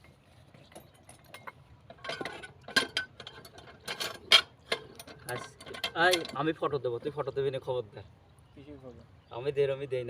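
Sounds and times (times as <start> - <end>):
metal clinking: 0.7 - 6.6.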